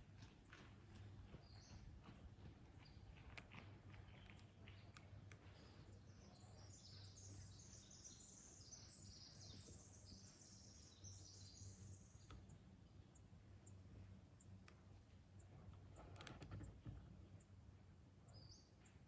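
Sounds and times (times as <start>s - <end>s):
high-pitched songbird song: 5.9s - 12.6s.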